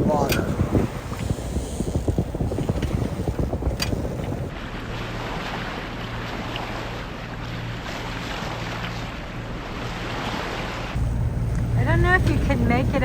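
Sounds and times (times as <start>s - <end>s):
wind on microphone: 0.0s - 4.6s
water hissing along hull: 0.0s - 13.0s
low engine drone: 0.1s - 13.0s.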